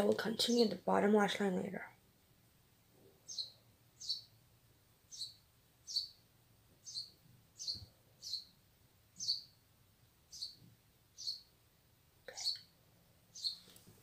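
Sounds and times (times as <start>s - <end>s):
bird chirping: 0.0s - 0.8s, 3.2s - 4.4s, 5.0s - 9.6s, 10.2s - 11.6s, 12.3s - 13.8s.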